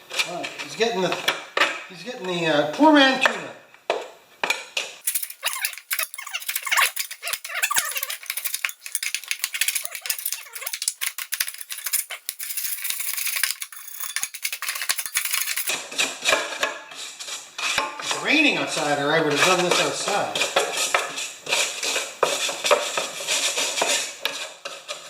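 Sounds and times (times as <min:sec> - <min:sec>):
metal scraper scraping mower deck: 0:05.0 - 0:15.7.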